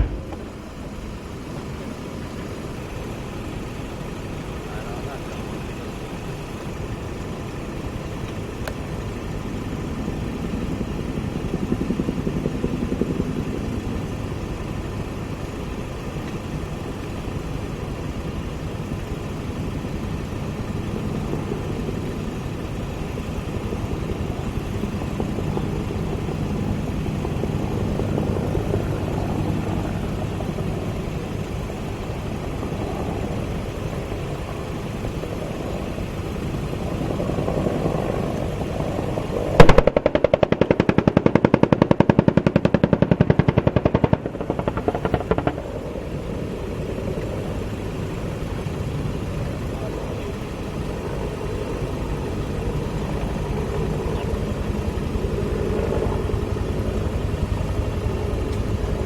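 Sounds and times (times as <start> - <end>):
engine droning: 0.0 - 59.0.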